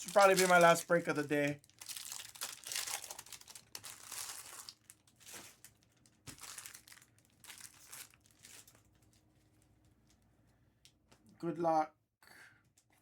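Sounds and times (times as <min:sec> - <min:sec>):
foil wrappers crinkling and tearing: 0:00.0 - 0:09.2.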